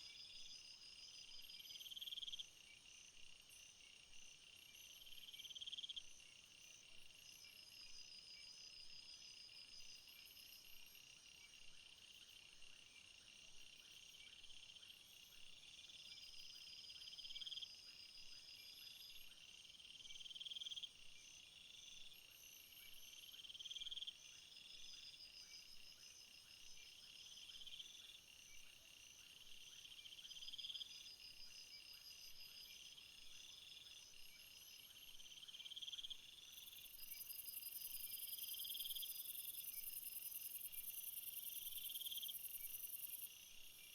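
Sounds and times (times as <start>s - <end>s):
buzzy insect call: 29.1s - 43.9s
insects chirring: 33.6s - 43.9s.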